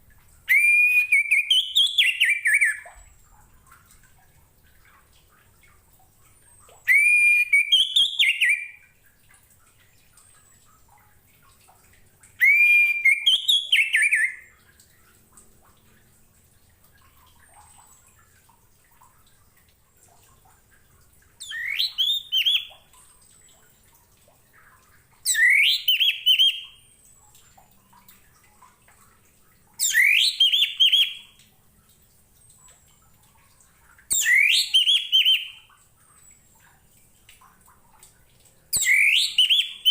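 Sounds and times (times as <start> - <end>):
thrush singing whistled notes: 0.5 - 3.1, 6.8 - 8.8, 12.4 - 14.5, 21.4 - 22.7, 25.3 - 26.8, 29.8 - 31.3, 34.1 - 35.7, 38.8 - 39.9.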